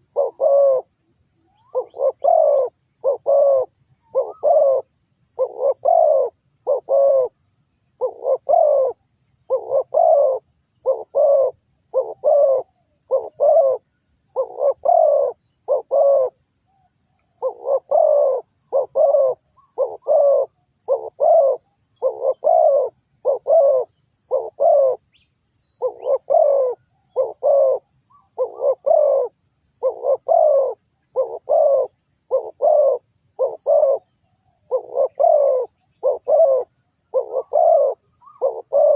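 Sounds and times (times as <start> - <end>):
dove cooing: 0.0 - 0.9, 1.5 - 7.4, 8.0 - 16.5, 17.4 - 25.1, 25.8 - 38.9.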